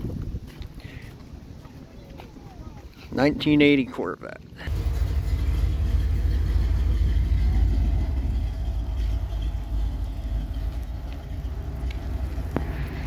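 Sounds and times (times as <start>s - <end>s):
car engine exhaust rumble: 4.6s - 13.0s.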